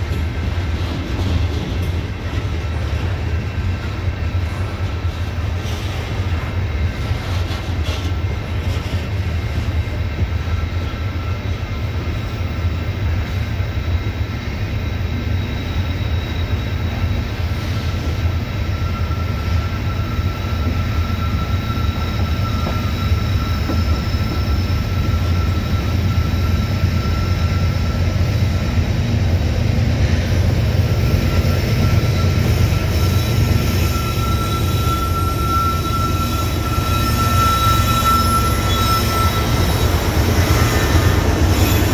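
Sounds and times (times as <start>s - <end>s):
diesel locomotive: 0.0s - 41.9s
freight train wheels clattering: 0.0s - 41.9s
high wheel squeal: 13.0s - 41.9s.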